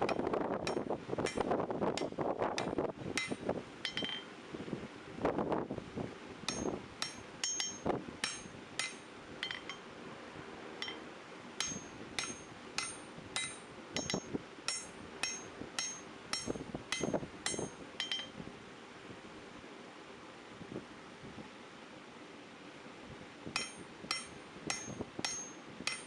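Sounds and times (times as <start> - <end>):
hammer striking steel on anvil: 0.0 - 4.3, 6.5 - 9.9, 10.8 - 11.0, 11.6 - 18.4, 23.6 - 26.0.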